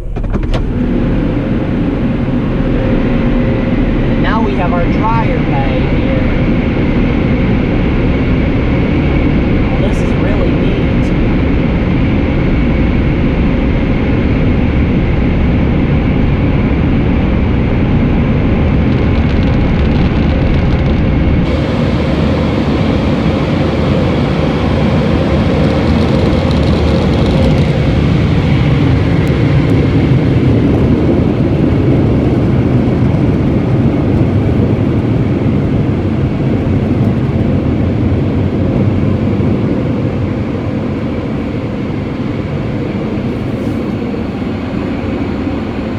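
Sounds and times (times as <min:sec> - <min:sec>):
dryer blowers rushing air: 0:00.0 - 0:45.9
steady hum: 0:00.0 - 0:45.9.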